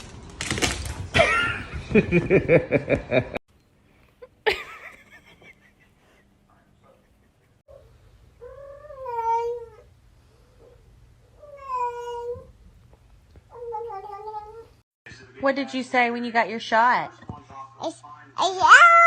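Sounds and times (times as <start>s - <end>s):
cat meowing: 8.4s - 9.8s, 11.4s - 12.5s.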